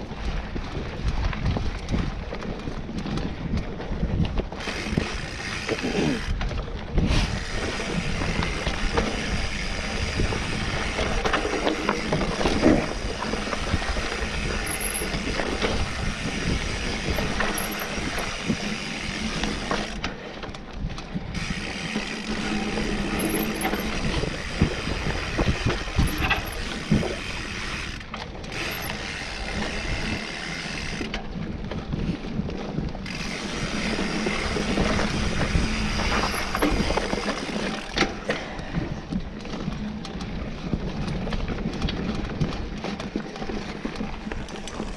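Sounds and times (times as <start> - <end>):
mountain bike rattling on dirt: 0.0 - 44.9
bike hub ratcheting: 4.5 - 31.2, 33.0 - 38.8.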